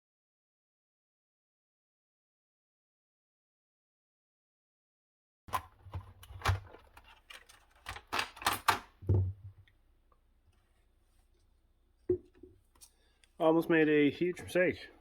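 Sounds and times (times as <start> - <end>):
plastic clicks and knocks: 5.5 - 9.7.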